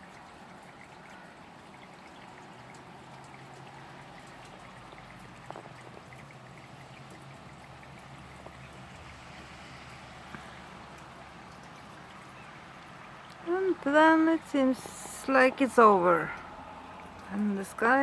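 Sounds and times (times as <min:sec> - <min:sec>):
scattered drips: 0:00.0 - 0:18.0
steady rain hiss: 0:00.0 - 0:18.0.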